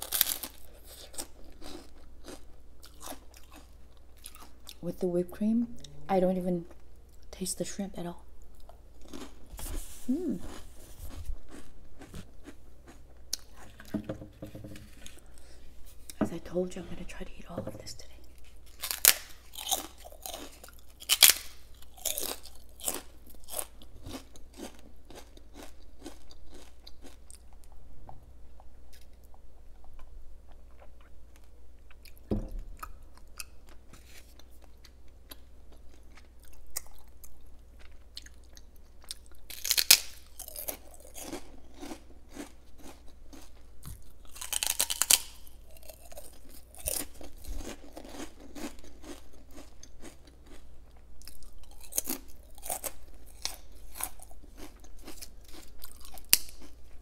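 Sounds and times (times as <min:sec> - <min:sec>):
crunching prawn crackers: 0:00.0 - 0:04.8, 0:08.6 - 0:09.5, 0:18.6 - 0:27.7, 0:32.8 - 0:50.6, 0:51.2 - 0:57.0.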